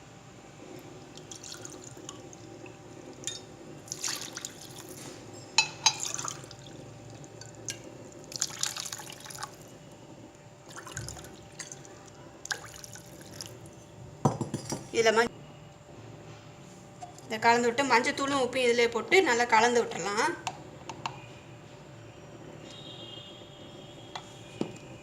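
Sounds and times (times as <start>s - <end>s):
water pouring into a bowl: 1.1s - 2.8s, 3.8s - 5.0s, 6.0s - 9.7s, 10.7s - 13.7s.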